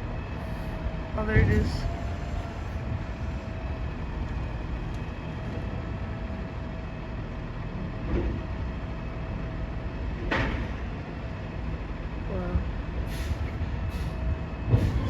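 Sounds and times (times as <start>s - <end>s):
garbage truck diesel engine: 0.0s - 15.0s.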